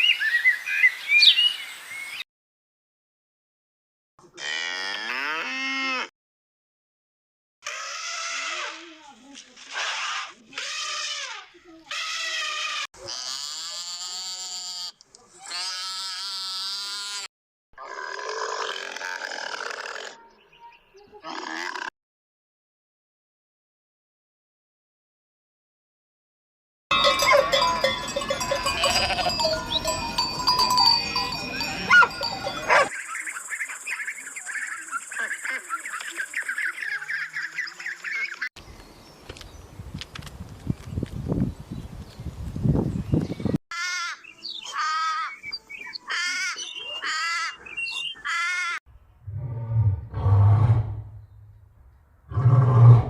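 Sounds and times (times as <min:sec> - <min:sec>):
deep animal calls: 0:26.9 - 0:32.9, 0:49.2 - 0:51.4, 0:52.3 - 0:53.0
livestock bells clinking: 0:26.9 - 0:32.9
animal calls: 0:26.9 - 0:38.4.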